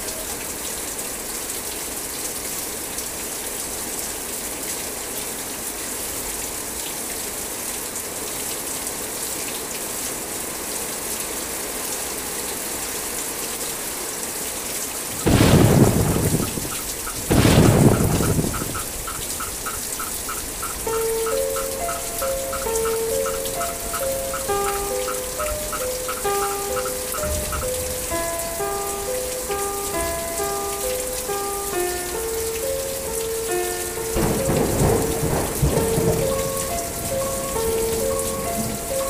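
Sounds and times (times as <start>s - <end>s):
heavy rain on steel: 0.0s - 39.0s
thunder claps: 15.1s - 28.3s, 34.1s - 38.9s.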